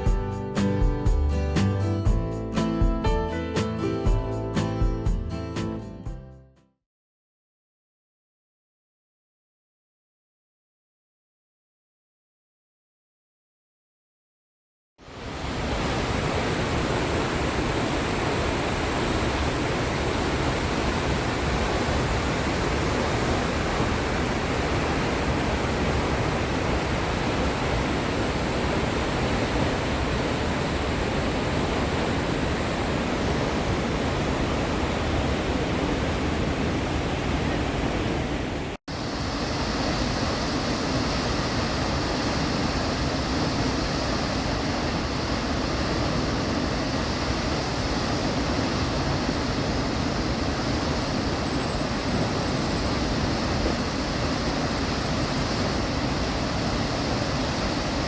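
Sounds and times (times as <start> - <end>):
rushing water roar: 15.0 - 58.0.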